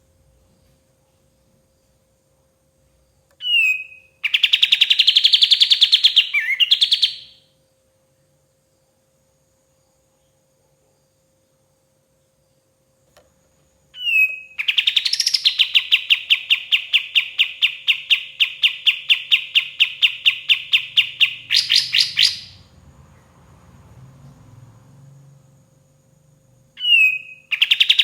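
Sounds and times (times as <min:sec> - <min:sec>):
bird call: 0:03.4 - 0:07.4, 0:14.0 - 0:22.7, 0:26.8 - 0:28.0
bulbul chirping song: 0:03.4 - 0:07.4, 0:14.0 - 0:22.7, 0:26.8 - 0:28.0.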